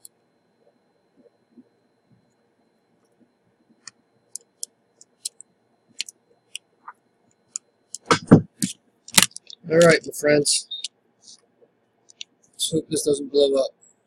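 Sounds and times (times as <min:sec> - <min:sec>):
clicks of small parts handled: 0:07.9 - 0:10.0.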